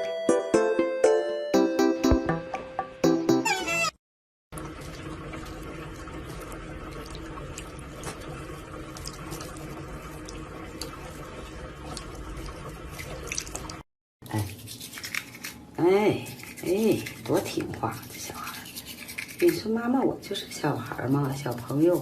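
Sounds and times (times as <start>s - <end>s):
water running: 4.5s - 22.0s.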